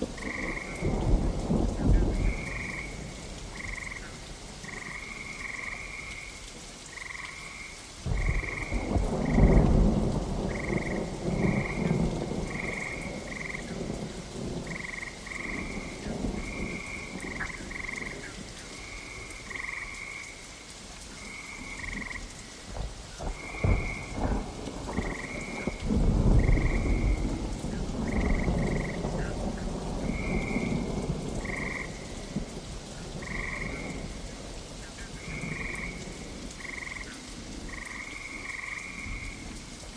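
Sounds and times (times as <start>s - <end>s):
thunder rumbling: 0.0s - 5.8s, 8.0s - 19.8s, 21.7s - 39.7s
steady rain: 0.0s - 39.9s
frogs calling: 0.2s - 9.8s, 10.4s - 22.6s, 23.2s - 32.3s, 33.0s - 34.2s, 34.8s - 39.5s
sharp thunder cracks: 23.2s - 32.5s.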